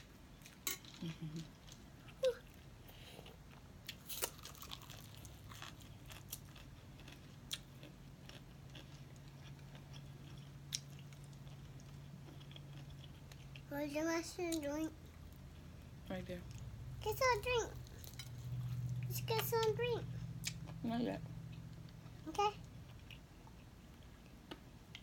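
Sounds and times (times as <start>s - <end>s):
faint steady low hum: 0.0s - 25.0s
chewing and biting chicken wings: 3.9s - 13.7s.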